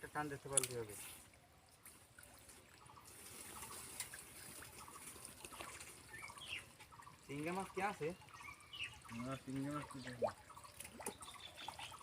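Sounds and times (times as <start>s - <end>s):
faint trickling water: 0.0s - 12.0s.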